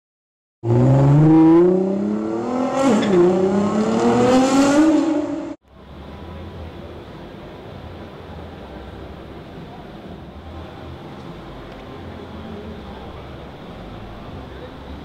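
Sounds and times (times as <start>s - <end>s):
car engine accelerating hard: 0.6s - 5.6s.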